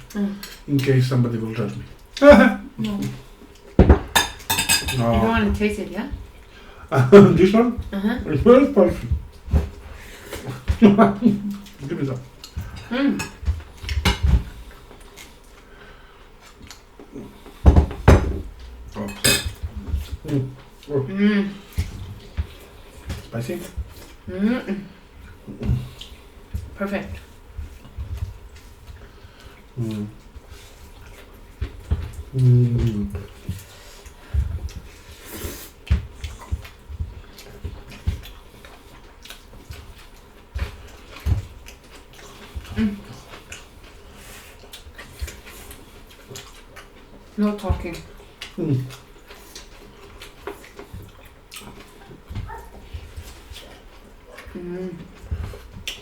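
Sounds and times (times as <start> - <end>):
cutlery clicking on dishes: 4.0 - 5.0
chewing: 7.4 - 17.6, 24.9 - 56.0.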